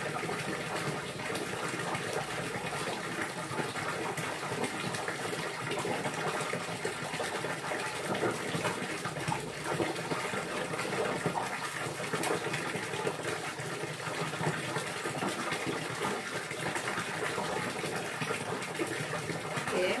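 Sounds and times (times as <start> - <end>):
running water gushing and splashing: 0.0 - 20.0.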